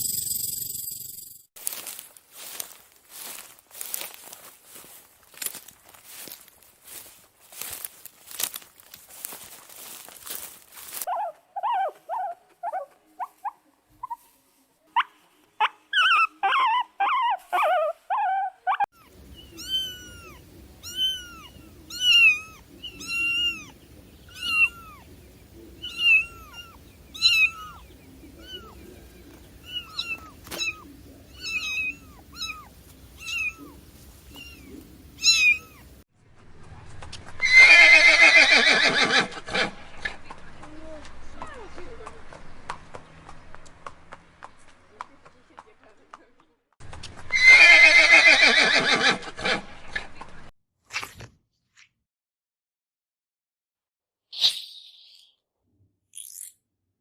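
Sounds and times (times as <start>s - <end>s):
kitten meowing: 19.0s - 25.0s, 25.8s - 27.8s, 28.4s - 28.8s, 29.6s - 35.9s
horse whinnying: 37.4s - 39.7s, 47.3s - 49.4s.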